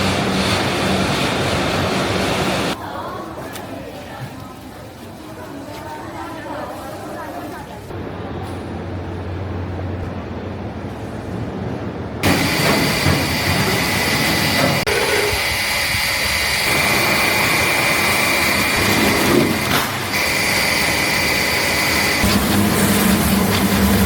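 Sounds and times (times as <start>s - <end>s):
machinery running with high whine: 0.0s - 2.8s, 11.8s - 24.0s.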